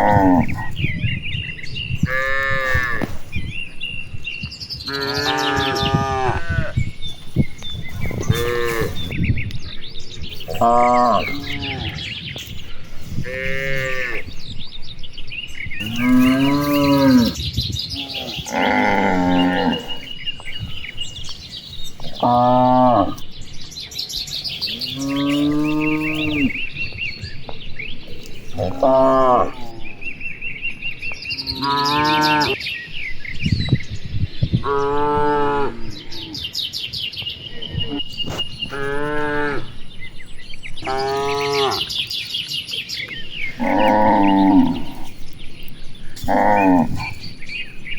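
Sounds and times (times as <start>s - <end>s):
cattle mooing: 0.0s - 0.8s, 8.0s - 9.1s, 10.4s - 12.1s, 15.8s - 17.4s, 18.0s - 20.2s, 22.0s - 23.2s, 24.8s - 26.7s, 28.3s - 30.0s, 31.4s - 32.6s, 37.7s - 39.8s, 40.8s - 42.0s, 43.5s - 45.2s, 46.2s - 47.6s
small birds chirping: 0.0s - 47.9s.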